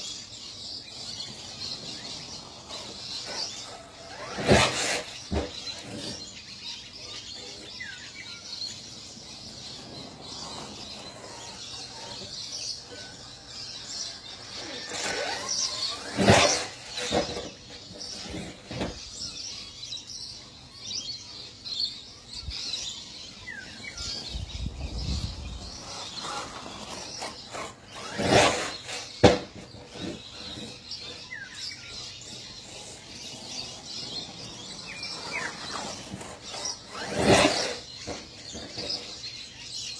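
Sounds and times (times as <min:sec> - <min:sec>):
birds chirping: 0:00.0 - 0:39.9
outdoor background noise: 0:00.0 - 0:39.9.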